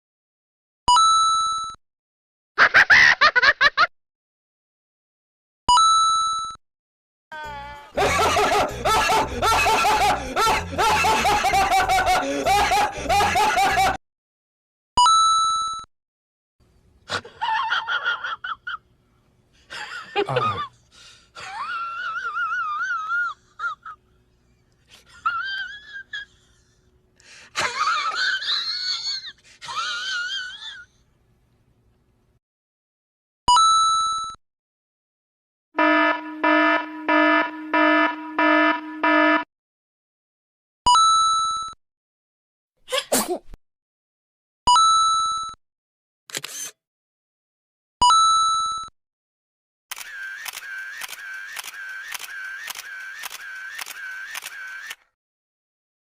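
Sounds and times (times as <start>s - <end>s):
cartoonish cackling laughter: 2.6s - 3.9s, 7.9s - 14.0s, 17.1s - 18.8s, 19.7s - 20.8s, 21.4s - 24.0s, 24.9s - 26.8s, 27.6s - 30.9s, 50.0s - 55.0s
short squeaks: 46.3s - 46.8s.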